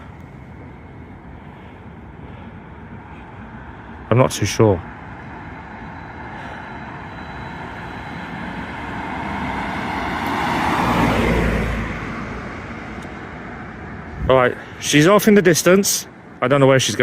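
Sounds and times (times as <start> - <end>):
traffic noise: 0.0 - 17.0
vehicle passing close by: 4.9 - 14.3.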